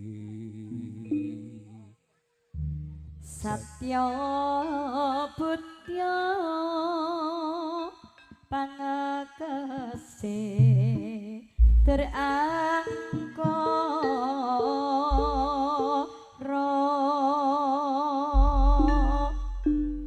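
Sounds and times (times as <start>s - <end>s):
deep drum strokes: 18.4s - 20.0s.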